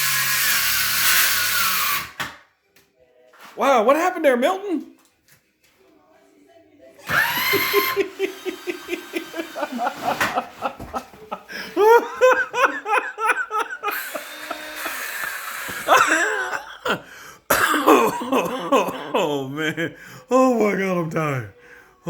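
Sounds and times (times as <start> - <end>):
man laughing hard: 7.3 - 20.5.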